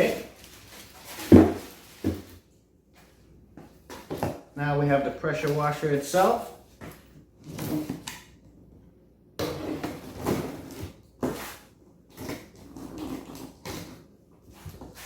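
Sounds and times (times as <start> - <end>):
cardboard scraping and rustling: 0.0 - 2.4.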